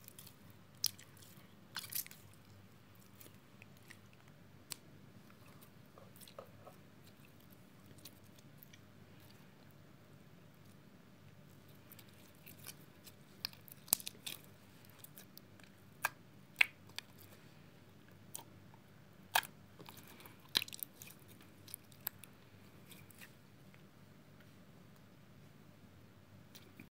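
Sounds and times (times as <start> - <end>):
slime squishing: 0.0 - 9.8, 11.5 - 17.4, 19.2 - 23.4.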